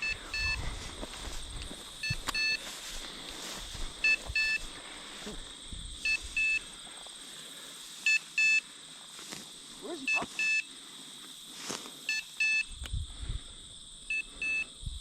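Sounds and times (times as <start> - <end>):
electronic collar double beep: 10.1 - 10.7.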